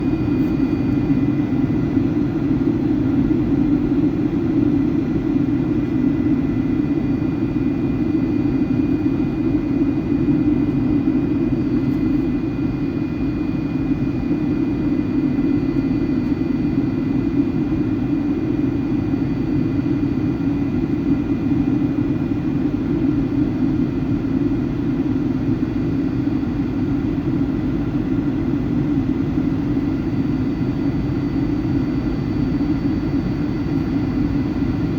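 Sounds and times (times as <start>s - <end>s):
high engine whine: 0.0s - 16.1s
aircraft engines roaring in cabin: 0.0s - 34.9s.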